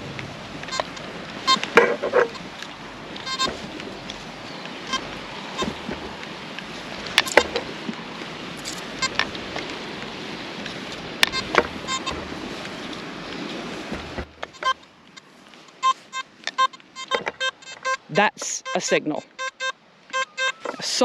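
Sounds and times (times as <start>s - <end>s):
surf: 0.0s - 21.0s
wind: 0.0s - 21.0s
metal detector beeping: 0.7s - 5.9s, 7.0s - 7.6s, 8.6s - 9.4s, 11.2s - 12.3s, 14.4s - 21.0s.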